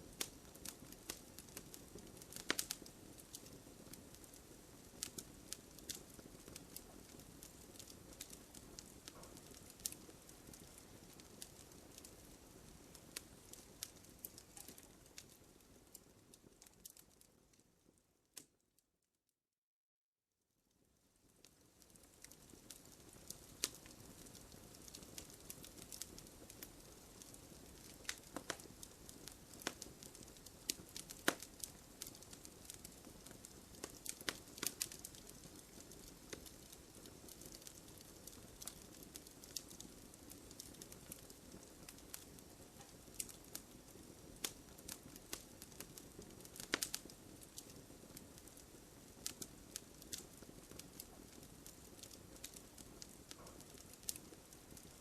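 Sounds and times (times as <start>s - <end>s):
bonfire crackling and popping: 0.0s - 18.6s, 20.8s - 55.0s
faint hiss of burning: 0.0s - 18.6s, 20.6s - 55.0s.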